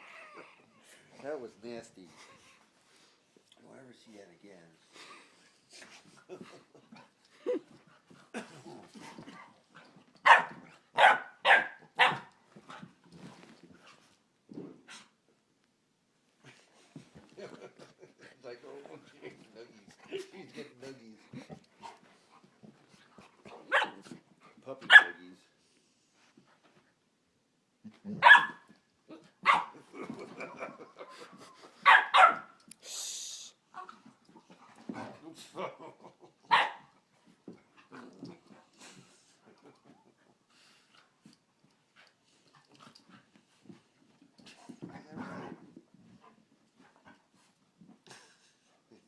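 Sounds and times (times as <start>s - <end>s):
dogs barking: 10.2s - 12.3s, 24.9s - 25.2s, 28.2s - 28.6s, 29.4s - 29.8s, 31.8s - 32.5s, 36.5s - 36.8s
dogs scuffling: 11.8s - 14.8s.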